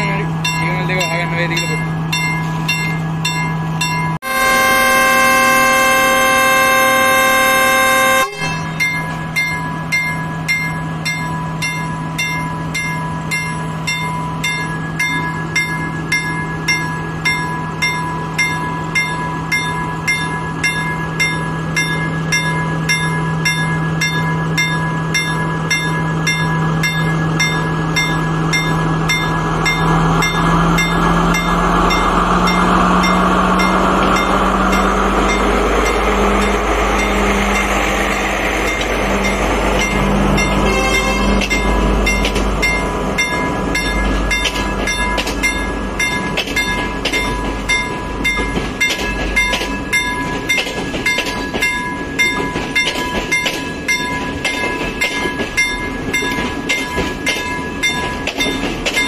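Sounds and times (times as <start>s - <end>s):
diesel train engine running: 0.0s - 59.0s
train horn blast: 4.2s - 8.8s, 40.5s - 41.7s.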